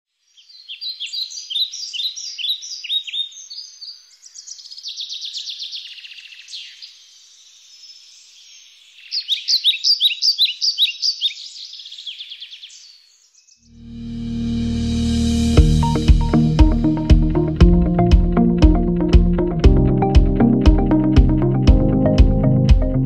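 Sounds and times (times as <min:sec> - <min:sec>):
songbirds chirping and trilling: 0:00.2 - 0:13.8.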